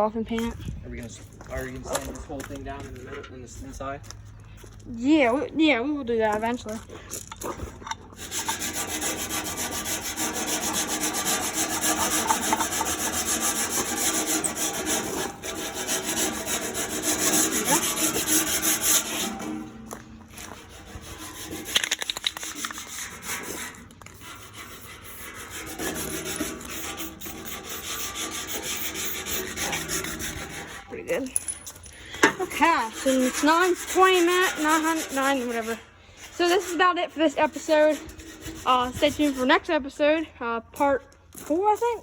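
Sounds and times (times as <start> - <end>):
sanding sheet metal: 8.2 - 31.2, 32.2 - 40.0.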